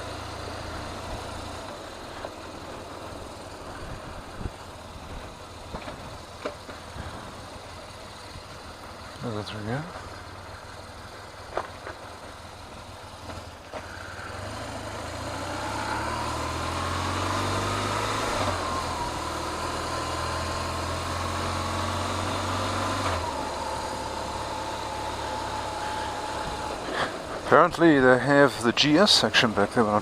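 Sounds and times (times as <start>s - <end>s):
motorcycle engine pulling away: 10.0s - 30.0s.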